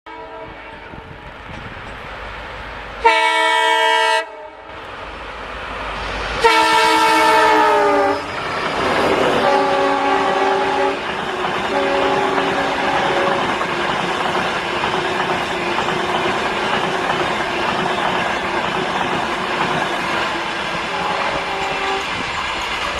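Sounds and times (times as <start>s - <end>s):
train horn: 0.1s - 1.2s, 3.0s - 4.7s, 6.4s - 8.4s, 9.1s - 11.1s, 11.7s - 13.6s, 20.8s - 22.2s
rumble of passing train: 0.1s - 22.9s.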